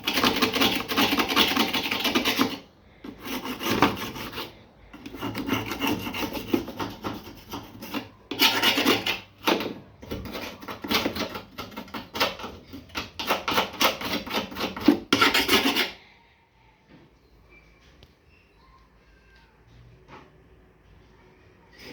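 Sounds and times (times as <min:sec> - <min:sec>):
rough hand scraping: 0:00.0 - 0:16.0.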